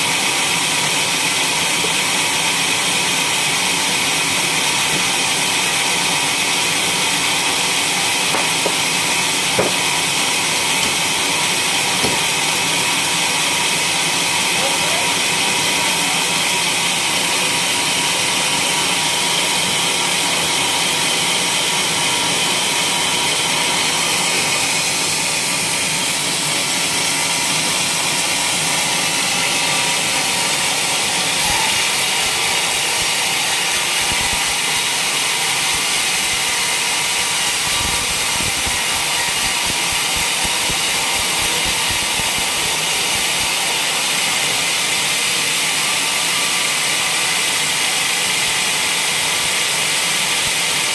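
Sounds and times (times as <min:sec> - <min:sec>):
sawmill blade sawing log: 0:00.0 - 0:50.9.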